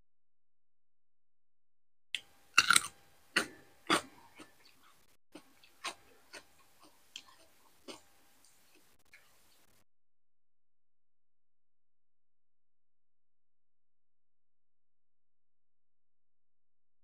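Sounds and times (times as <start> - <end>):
crunchy bites into cucumber: 2.6 - 4.6
wet chewing clicks: 2.6 - 9.7.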